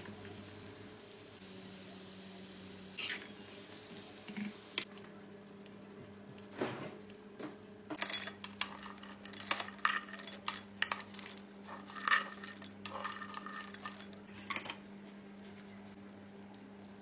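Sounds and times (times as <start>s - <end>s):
metal utensil scraping cookware: 8.0s - 14.8s.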